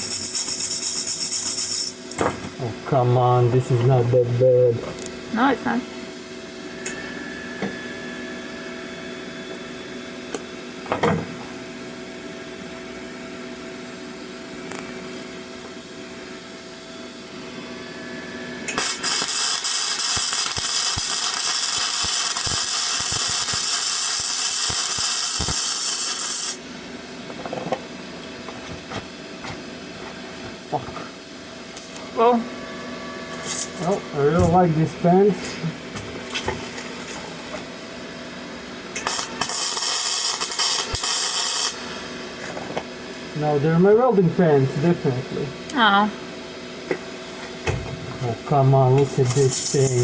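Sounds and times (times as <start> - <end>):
arc welding crackle: 0.0 - 2.3, 18.6 - 26.6, 33.3 - 34.9, 38.9 - 42.6, 48.2 - 50.0
steady hum: 0.0 - 50.0.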